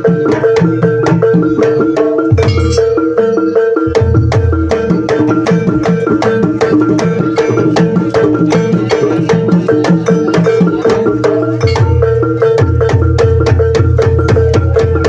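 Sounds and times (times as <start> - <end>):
hand drums and tuned percussion: 0.0 - 15.0
ringing held tone: 1.4 - 6.8, 8.6 - 13.2.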